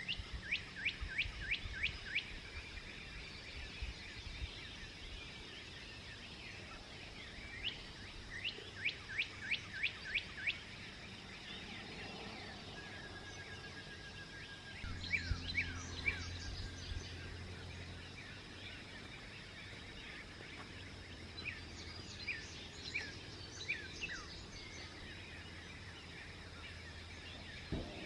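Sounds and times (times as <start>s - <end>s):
songbird singing: 0.0s - 28.0s
low background rumble: 11.2s - 28.0s.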